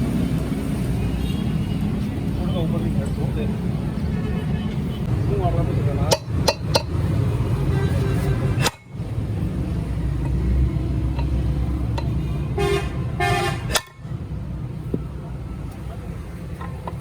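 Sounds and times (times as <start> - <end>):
vehicle horn toots: 7.6 - 8.7, 12.5 - 14.1.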